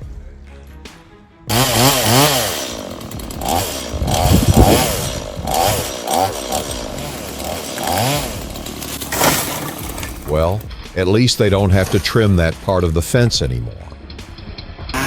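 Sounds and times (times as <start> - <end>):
chainsaw cutting and revving: 1.5 - 10.7.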